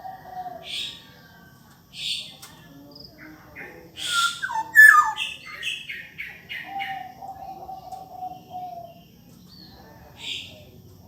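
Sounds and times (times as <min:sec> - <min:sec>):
bird singing fluty whistles: 0:04.0 - 0:05.6.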